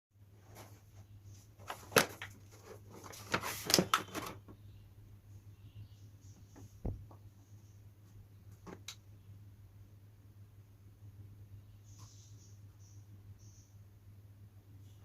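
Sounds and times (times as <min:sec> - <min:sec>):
dull thump: 0:06.8 - 0:07.2.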